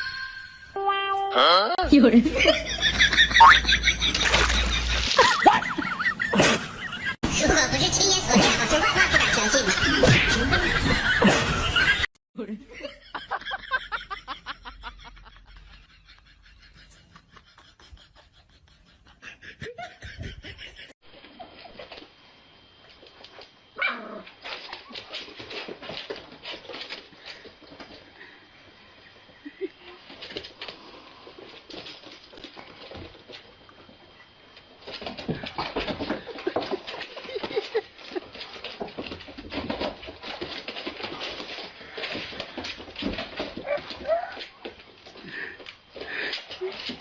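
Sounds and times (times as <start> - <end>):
dog yelping: 23.8 - 24.2
rustling: 34.6 - 47.0.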